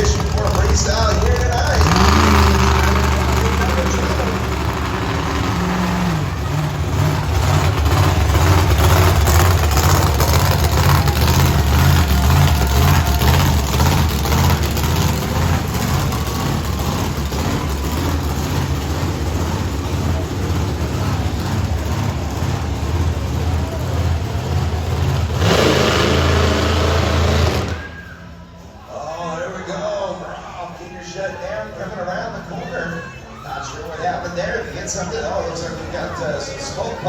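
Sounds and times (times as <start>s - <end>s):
monster truck engine revving: 0.0s - 28.9s.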